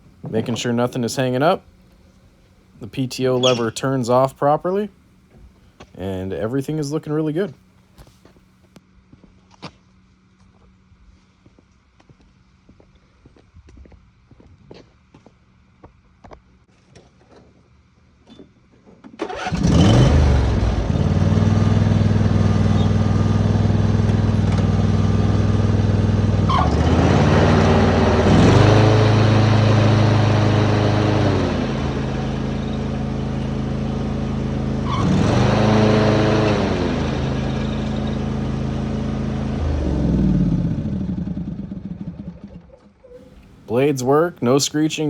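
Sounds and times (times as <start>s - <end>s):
riding mower engine running: 0.0s - 8.2s, 19.2s - 42.6s, 43.2s - 45.0s.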